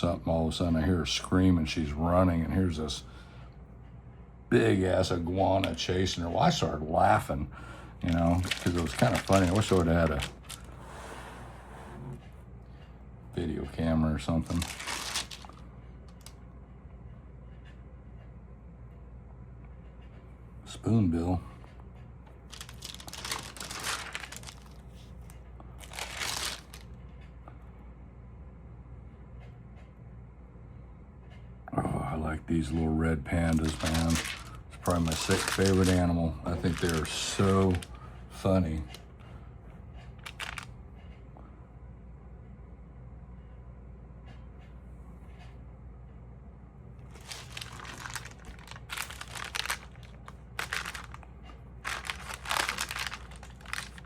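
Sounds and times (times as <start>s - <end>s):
steady low hum: 0.0s - 54.0s
paper pages rustling: 8.0s - 10.9s, 14.3s - 15.6s, 22.5s - 26.8s, 33.4s - 38.0s, 40.2s - 40.7s, 47.1s - 54.0s.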